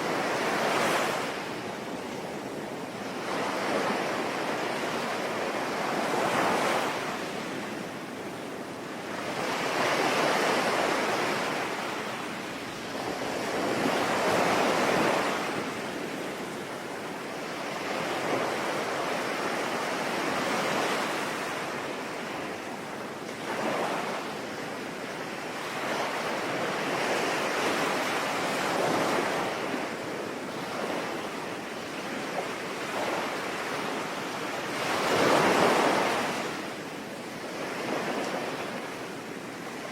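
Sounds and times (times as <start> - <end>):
sea waves breaking: 0.0 - 39.9.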